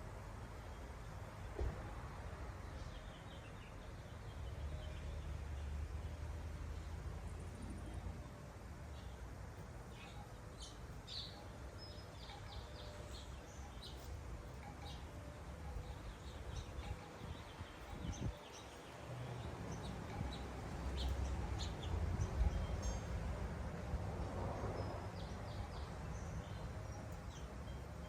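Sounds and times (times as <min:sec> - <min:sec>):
small birds chirping: 0:09.9 - 0:23.2.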